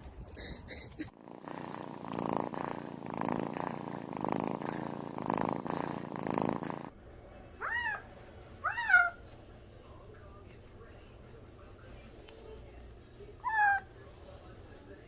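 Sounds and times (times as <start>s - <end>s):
cat purring loudly: 1.0s - 6.9s.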